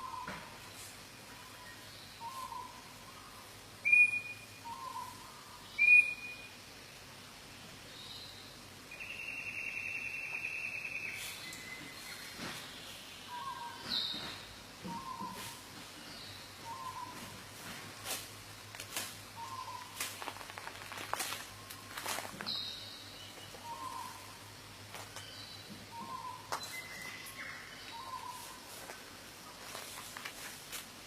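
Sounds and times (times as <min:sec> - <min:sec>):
high bird whistle: 0:03.9 - 0:04.4, 0:05.8 - 0:06.5
loud sharp bird whistles: 0:03.9 - 0:04.4, 0:05.8 - 0:06.4.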